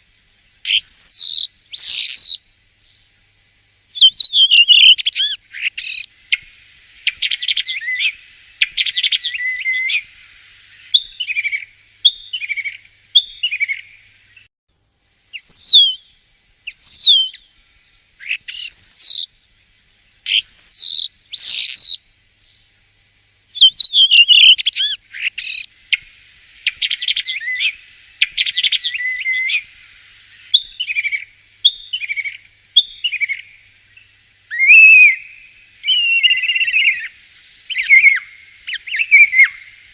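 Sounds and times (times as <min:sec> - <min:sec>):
starling singing: 0:00.7 - 0:02.4, 0:03.9 - 0:06.0, 0:15.4 - 0:16.0, 0:16.7 - 0:17.4, 0:18.2 - 0:19.3, 0:20.3 - 0:22.0, 0:23.5 - 0:25.7, 0:34.5 - 0:39.6.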